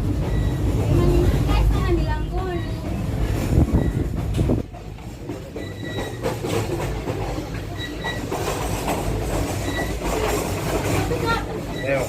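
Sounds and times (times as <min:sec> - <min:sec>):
train wheels rumbling on rails: 0:00.0 - 0:12.0
high wheel squeals: 0:00.2 - 0:01.2, 0:03.7 - 0:04.2, 0:05.5 - 0:06.4, 0:07.7 - 0:08.8, 0:09.5 - 0:10.3, 0:11.6 - 0:12.0.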